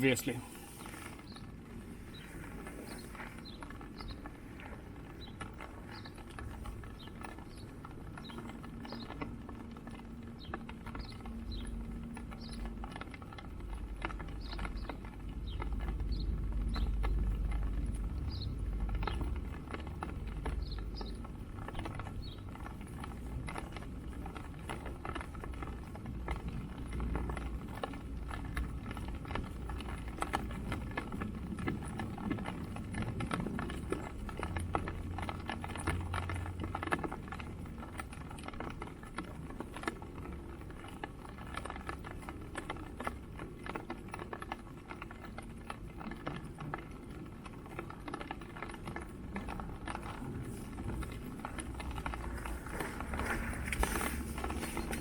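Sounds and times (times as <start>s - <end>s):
wind rumble on microphone: 0.0s - 38.5s, 46.5s - 55.0s
footsteps on muddy ground: 50.4s - 55.0s.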